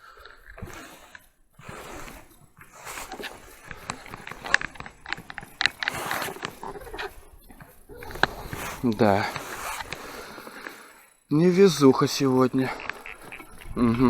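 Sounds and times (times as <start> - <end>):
fishing tackle clicking: 0.0 - 14.0
wind noise: 12.7 - 14.0.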